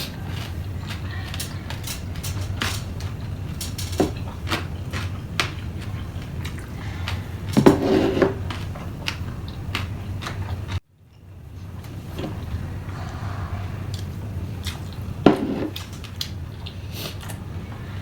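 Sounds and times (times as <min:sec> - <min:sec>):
utensils clicking on dishes: 0:00.0 - 0:05.6
low hum: 0:00.2 - 0:18.0.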